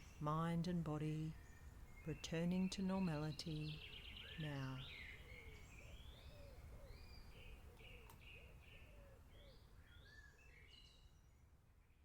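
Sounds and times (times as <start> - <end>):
birds chirping and whistling: 3.4 - 11.2.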